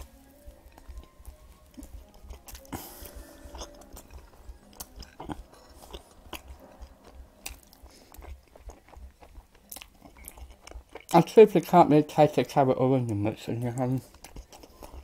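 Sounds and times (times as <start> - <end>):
person chewing food: 0.0 - 11.4, 13.0 - 15.0.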